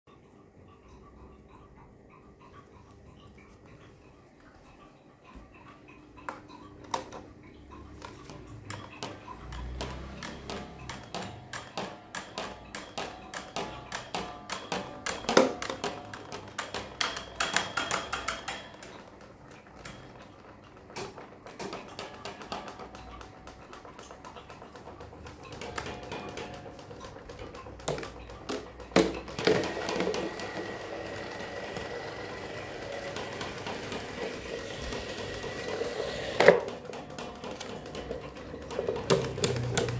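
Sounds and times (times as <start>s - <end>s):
hard objects clicking and clattering: 8.0s - 39.9s.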